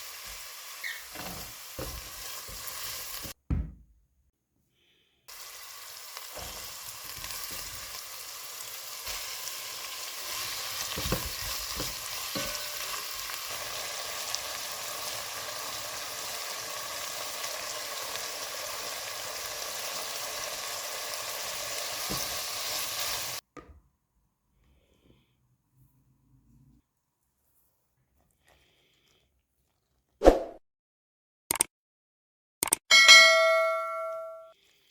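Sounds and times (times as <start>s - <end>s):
food sizzling in frying pan: 0.0s - 3.4s, 5.3s - 23.4s
utensil knocking while stirring: 10.8s - 12.8s.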